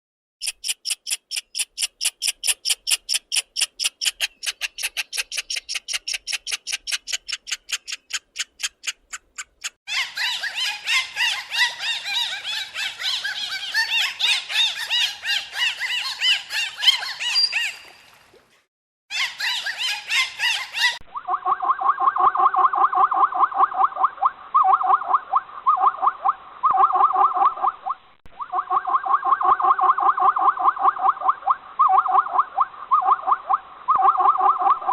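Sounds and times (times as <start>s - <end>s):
dolphins whistling and clicking: 0.4s - 9.8s, 15.8s - 18.2s, 21.1s - 34.9s
squirrel chattering: 0.4s - 11.4s.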